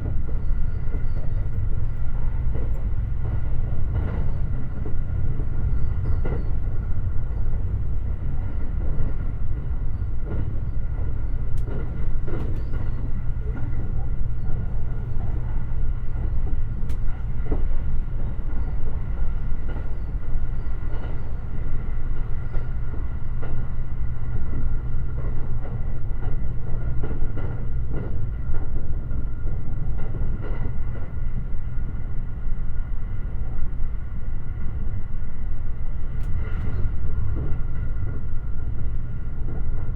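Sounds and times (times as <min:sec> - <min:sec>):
train running rumble: 0:00.0 - 0:39.9.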